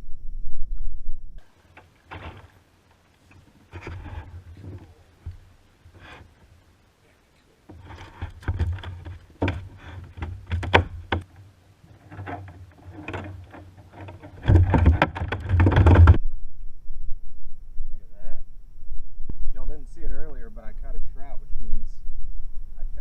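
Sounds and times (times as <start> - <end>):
low rumble: 0.0 - 1.5, 15.9 - 23.0
knocks and clatters on kayak: 1.7 - 2.6, 7.7 - 16.2.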